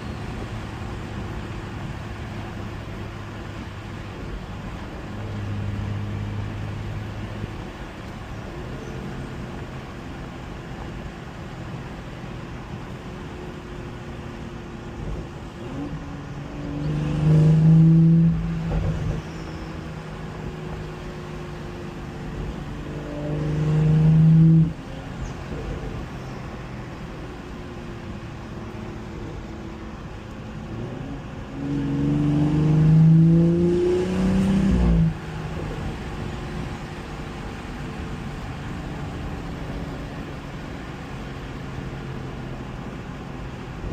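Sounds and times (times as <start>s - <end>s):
car engine revving: 15.1s - 43.9s.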